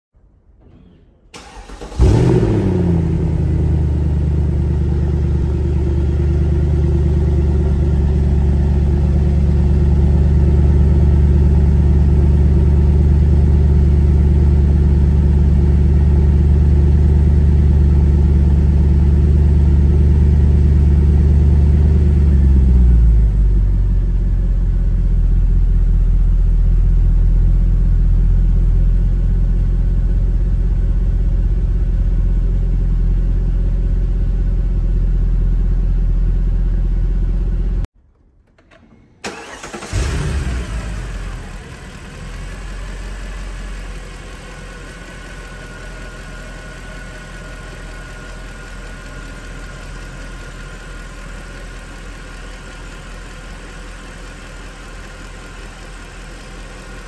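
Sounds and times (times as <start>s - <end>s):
car engine starting and idling: 0.6s - 57.0s
car engine cranking: 1.3s - 2.8s, 38.4s - 41.4s.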